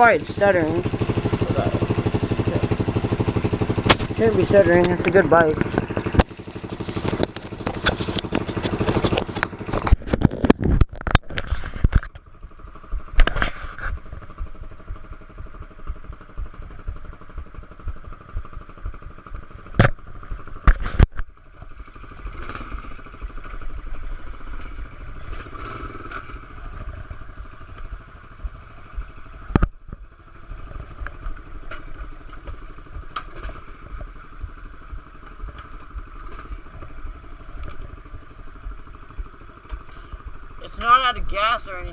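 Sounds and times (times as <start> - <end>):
engine sharp cracks: 0.0 - 41.9
pit bike engine running unevenly: 0.0 - 41.9
man talking: 40.6 - 41.9.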